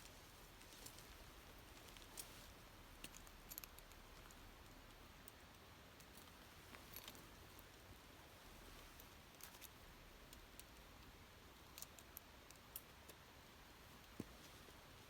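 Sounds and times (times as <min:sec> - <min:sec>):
tent clips clicking and rattling: 0:00.6 - 0:07.7, 0:11.6 - 0:13.2.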